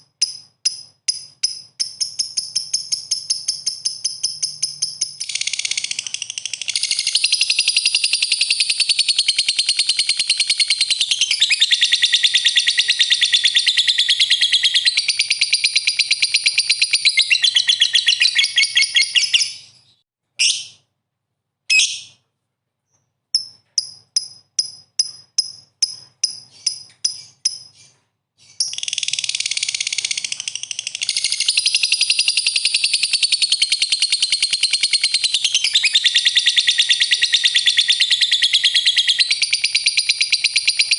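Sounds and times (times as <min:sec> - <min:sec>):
lovebird chirps: 0:00.0 - 0:20.9, 0:21.7 - 0:22.2, 0:22.8 - 0:40.9
lovebird chattering trill: 0:00.2 - 0:19.7.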